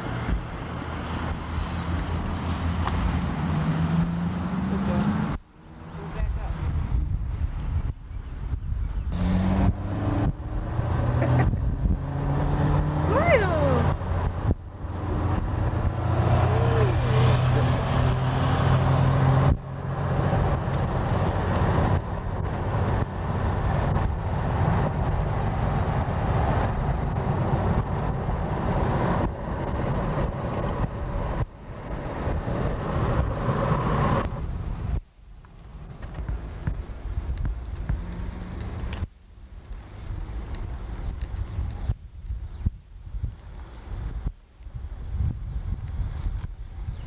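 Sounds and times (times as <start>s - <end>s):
road noise: 0.0s - 47.0s
vehicle engine running: 8.6s - 42.0s.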